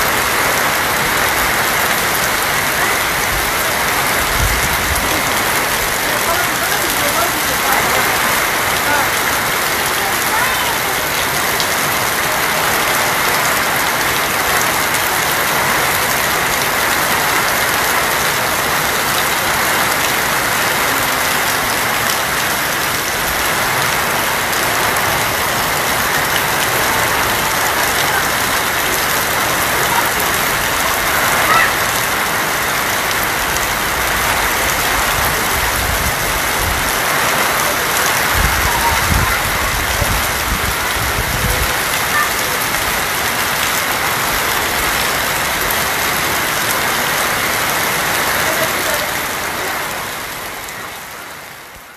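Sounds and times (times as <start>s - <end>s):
rain drumming on a tin roof: 0.0s - 51.9s
low rumbling: 2.3s - 6.6s.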